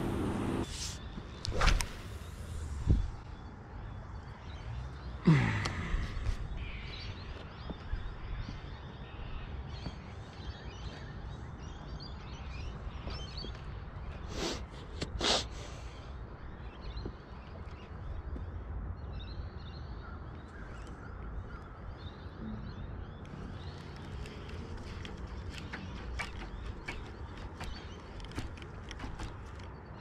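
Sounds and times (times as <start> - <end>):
steady low rumble: 0.0 - 4.3.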